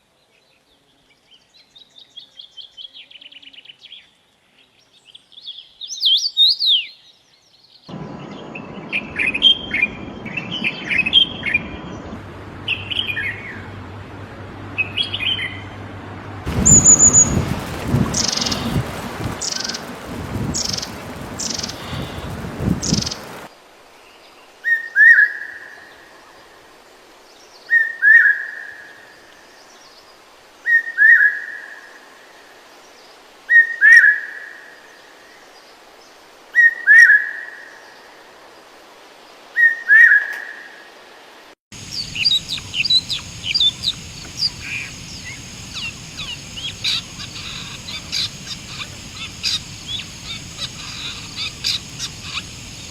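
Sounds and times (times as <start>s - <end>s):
songbirds calling: 0.2s - 13.8s, 16.5s - 23.5s, 41.7s - 52.9s
small birds chirping: 0.5s - 13.6s, 16.5s - 23.5s, 41.7s - 52.9s
rushing noise: 7.9s - 23.5s, 41.7s - 52.9s
steady high hiss: 16.5s - 24.6s, 41.7s - 52.9s.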